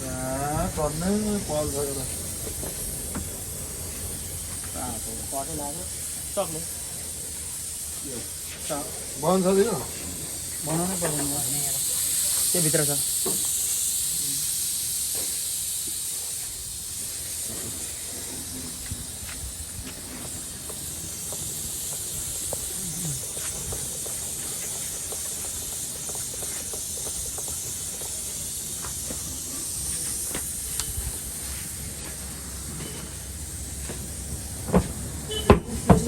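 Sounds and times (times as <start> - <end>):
compressed air hissing: 0.0 - 36.0
sharp knock: 34.7 - 36.0.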